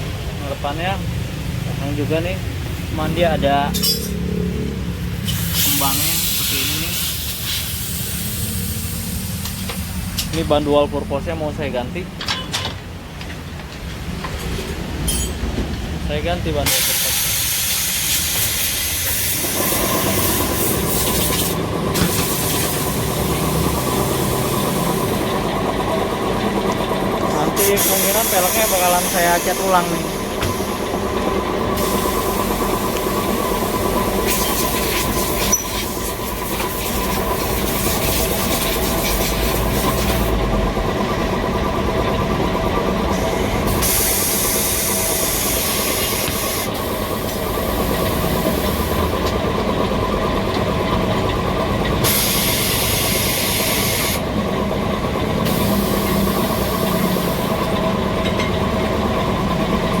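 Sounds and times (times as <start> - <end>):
air hissing bursts: 5.2 - 10.4, 16.6 - 25.2, 27.6 - 31.0, 31.6 - 40.3, 43.1 - 49.0, 52.0 - 54.2
compressor motor humming: 16.1 - 60.0.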